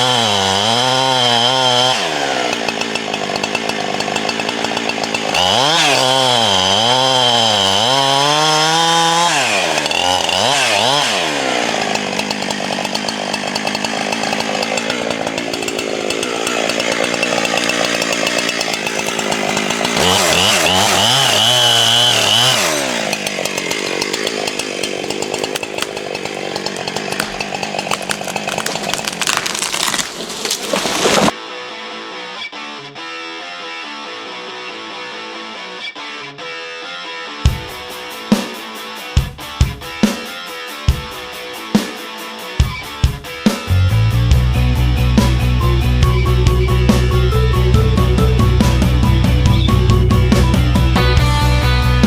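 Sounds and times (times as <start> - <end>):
chainsaw cutting wood: 0.0 - 31.4, 42.9 - 52.0.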